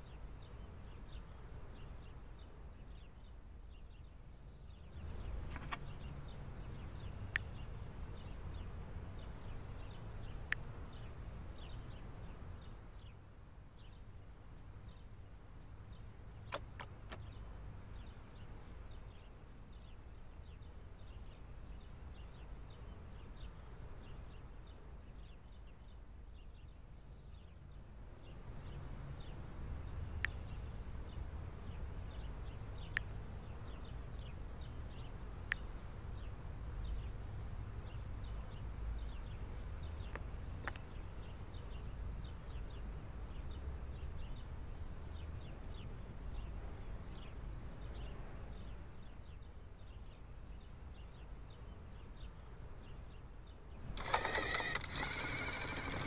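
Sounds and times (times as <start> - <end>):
sharp clicks: 5.0 - 6.2, 16.5 - 17.3, 53.8 - 56.0
motor whine: 53.8 - 56.0.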